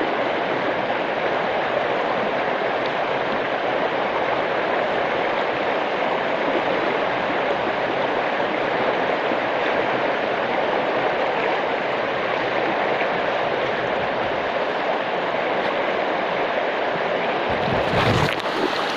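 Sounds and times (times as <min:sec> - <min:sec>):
storm rushing noise: 0:17.5 - 0:18.9.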